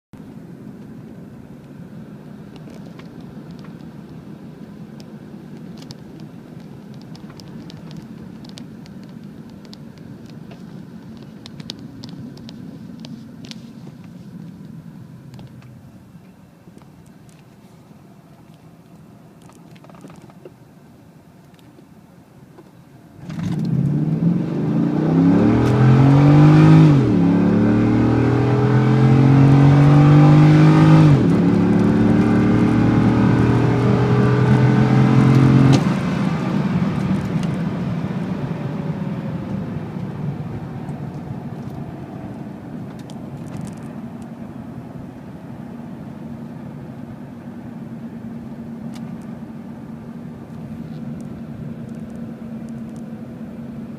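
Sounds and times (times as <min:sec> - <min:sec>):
car engine accelerating: 0:23.2 - 0:53.9.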